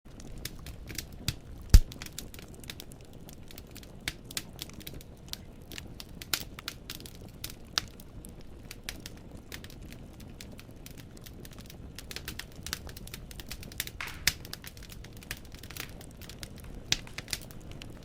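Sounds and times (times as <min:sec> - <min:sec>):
low rumble of flame: 0:00.1 - 0:18.0
wood fire crackling: 0:00.1 - 0:18.0
logs popping: 0:00.4 - 0:02.6, 0:11.5 - 0:18.0.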